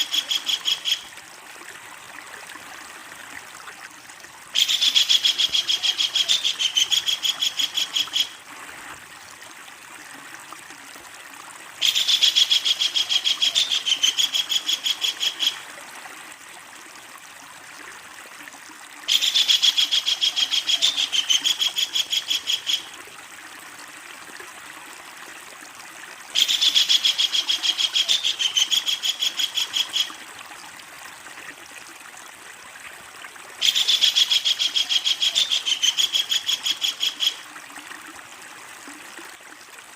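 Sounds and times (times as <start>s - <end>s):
kingfisher rattling call: 0.0s - 1.1s, 4.6s - 8.4s, 19.1s - 22.9s, 26.4s - 30.1s, 33.6s - 37.4s
running water hiss: 0.0s - 39.9s.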